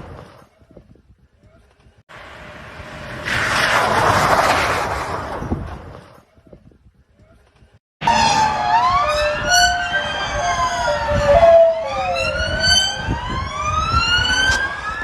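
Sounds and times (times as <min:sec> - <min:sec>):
emergency sirens wailing: 0:08.0 - 0:15.0.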